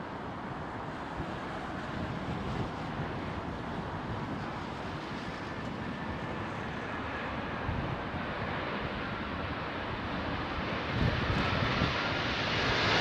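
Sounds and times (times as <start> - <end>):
wind buffeting microphone: 1.0 - 13.0.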